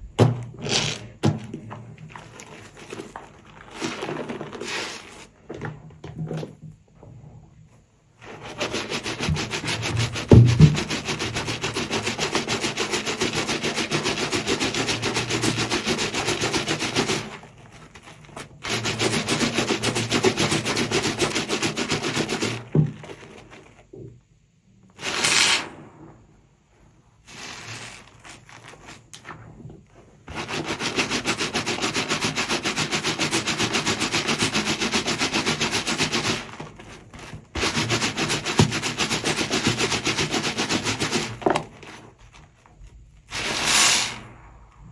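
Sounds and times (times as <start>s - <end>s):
sponge scrubbing against soap: 0.6s - 5.5s, 8.1s - 24.0s, 24.9s - 44.6s.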